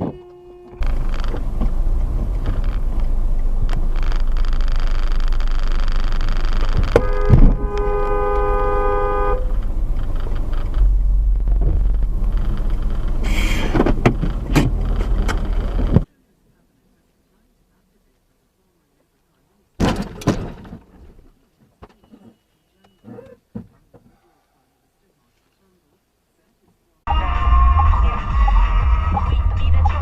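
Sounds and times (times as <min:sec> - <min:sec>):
two-tone car horn: 0:00.0 - 0:01.0, 0:06.7 - 0:09.6
car engine and road noise: 0:00.0 - 0:24.2, 0:24.8 - 0:30.0
sharp clicks: 0:00.8 - 0:07.0, 0:09.5 - 0:16.0.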